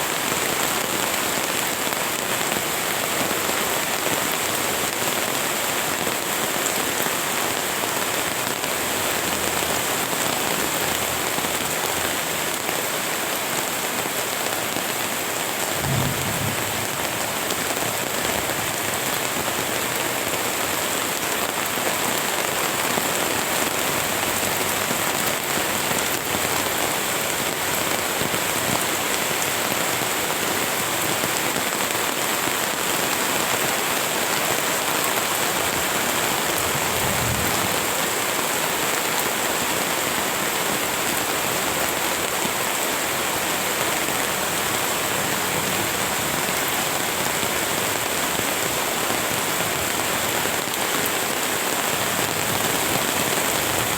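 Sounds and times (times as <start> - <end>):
rain pattering on surfaces: 0.0 - 53.9
low thump: 15.8 - 17.7.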